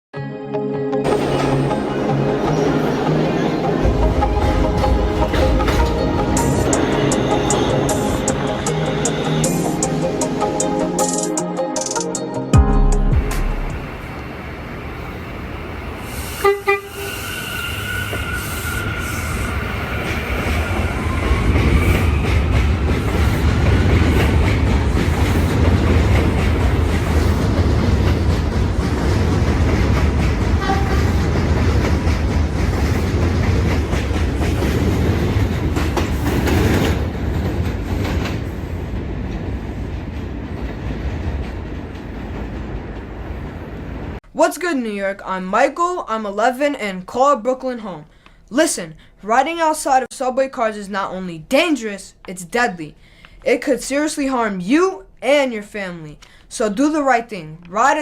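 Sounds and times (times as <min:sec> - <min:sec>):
train horn toots: 0:16.2 - 0:19.5, 0:30.6 - 0:31.3.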